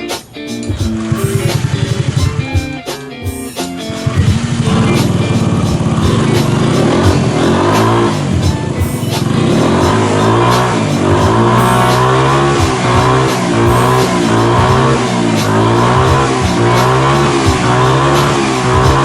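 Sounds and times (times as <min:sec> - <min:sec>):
background music: 0:00.0 - 0:19.0
scooter engine revving: 0:00.6 - 0:19.0.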